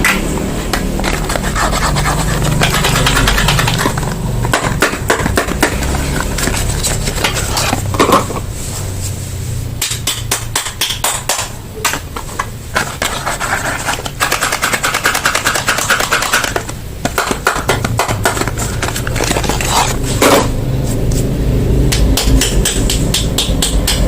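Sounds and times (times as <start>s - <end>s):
wrapper crinkling: 18.4s - 20.2s.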